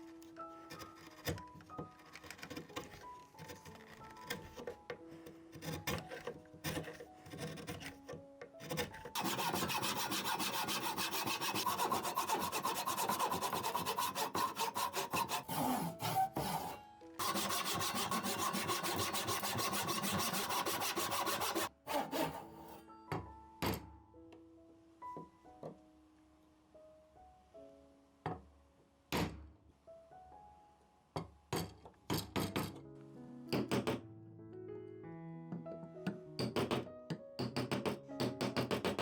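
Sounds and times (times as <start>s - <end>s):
background music: 0.0s - 39.0s
hand tool rasping wood: 0.7s - 4.8s, 5.5s - 22.8s.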